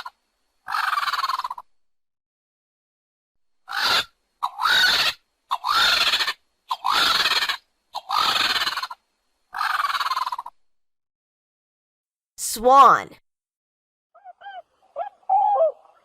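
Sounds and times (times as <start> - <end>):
vulture harsh rasping calls: 0.0 - 1.7, 3.6 - 10.6.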